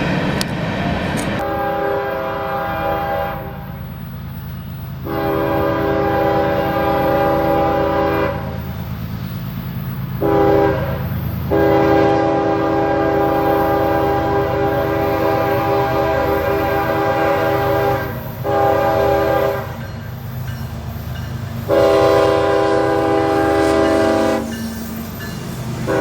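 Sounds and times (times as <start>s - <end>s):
low rumble of passing train: 0.0s - 26.0s
train horn blasts: 1.4s - 3.8s, 5.0s - 8.6s, 10.2s - 20.0s, 21.6s - 24.7s.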